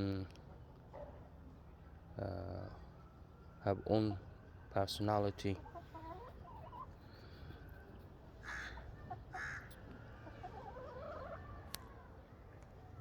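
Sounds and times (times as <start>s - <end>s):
chickens clucking and calling: 5.5s - 12.2s.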